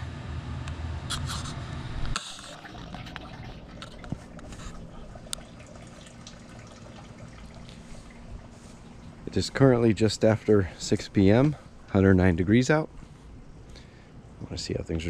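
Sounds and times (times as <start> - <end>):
air conditioner hum: 0.0 - 15.0
water pouring into soil: 2.2 - 11.0.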